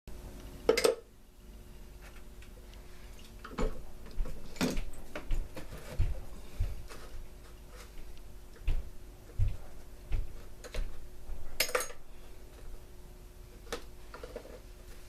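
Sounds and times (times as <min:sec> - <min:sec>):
faint steady hum: 0:00.1 - 0:15.0
objects clattering and knocking: 0:03.4 - 0:08.0
dull thumps: 0:08.6 - 0:11.1.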